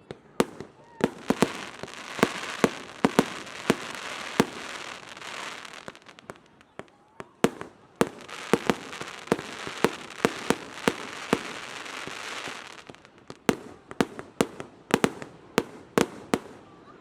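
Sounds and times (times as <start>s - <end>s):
fireworks bangs: 0.0s - 16.8s
fireworks hiss: 1.1s - 6.6s, 7.4s - 13.5s.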